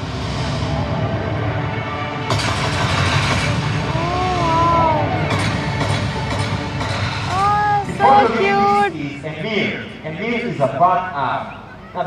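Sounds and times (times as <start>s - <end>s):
crowd of spectators: 0.0s - 12.0s
drawn-out exclamations: 3.9s - 5.4s, 7.3s - 9.0s.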